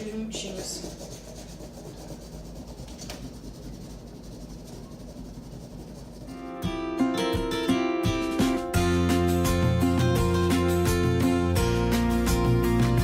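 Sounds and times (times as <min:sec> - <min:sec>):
hands rubbing cardboard: 0:00.0 - 0:06.5
acoustic guitar music: 0:06.3 - 0:13.0.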